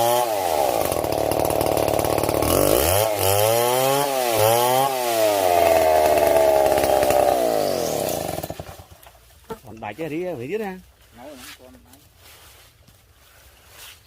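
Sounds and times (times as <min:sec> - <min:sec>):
chainsaw cutting wood: 0:00.0 - 0:09.2.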